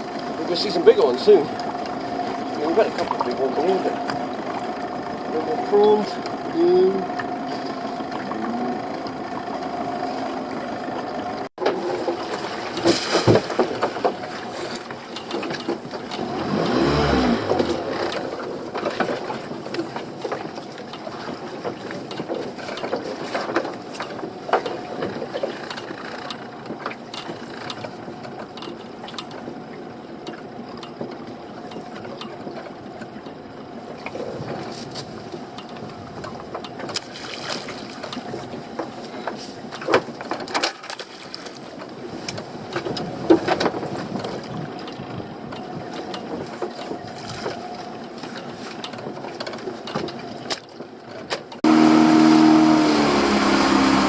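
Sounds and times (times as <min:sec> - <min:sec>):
outboard engine running: 0:00.0 - 0:54.0.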